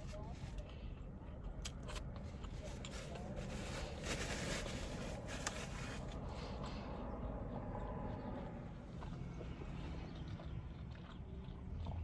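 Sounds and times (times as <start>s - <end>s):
person chewing food: 6.2s - 12.0s.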